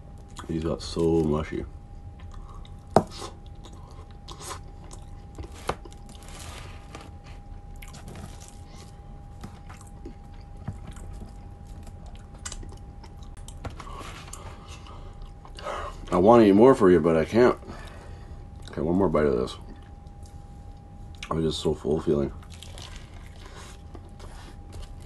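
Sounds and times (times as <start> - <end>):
chewing and biting food: 7.1 - 13.6, 22.4 - 25.0.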